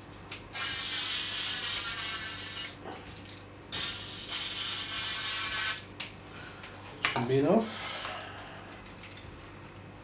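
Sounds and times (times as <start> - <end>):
aerosol can spraying: 3.8 - 5.8.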